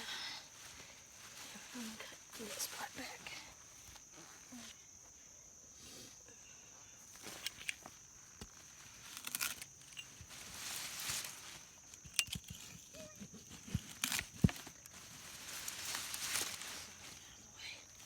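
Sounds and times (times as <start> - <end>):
vines rustling and tearing: 8.5 - 12.8, 13.4 - 17.4.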